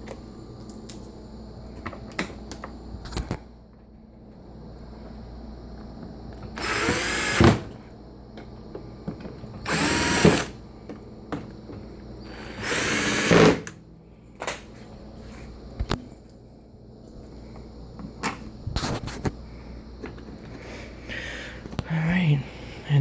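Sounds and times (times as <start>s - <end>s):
power drill whirring: 6.4s - 7.8s, 9.6s - 10.6s, 12.2s - 13.7s.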